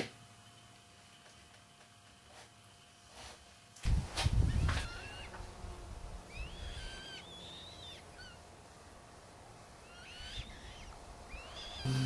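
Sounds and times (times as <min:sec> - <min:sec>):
bird whistling: 0:09.9 - 0:12.0.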